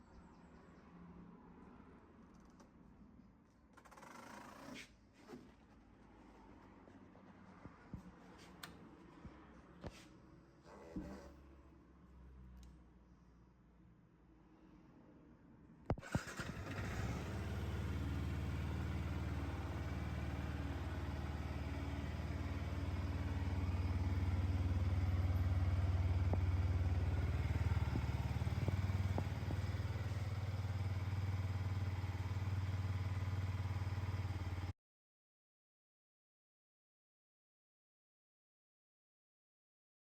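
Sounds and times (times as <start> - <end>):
motorcycle engine starting and idling: 15.9 - 34.7.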